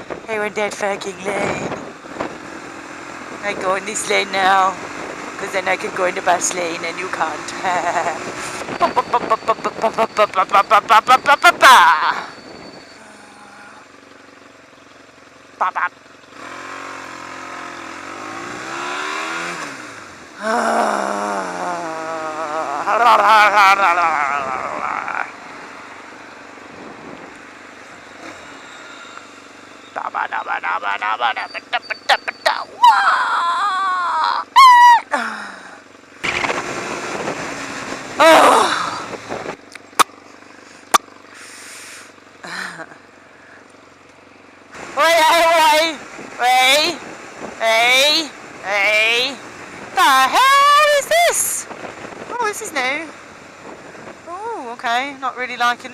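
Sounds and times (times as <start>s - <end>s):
motorcycle engine accelerating: 0.0s - 55.9s
wind: 0.0s - 55.9s.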